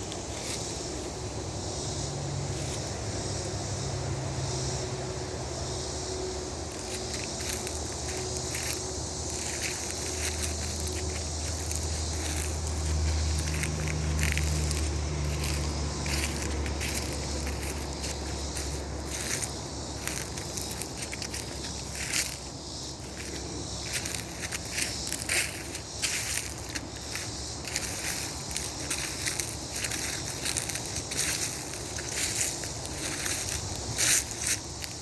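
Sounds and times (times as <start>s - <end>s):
crackling and rustling: 6.7s - 35.0s.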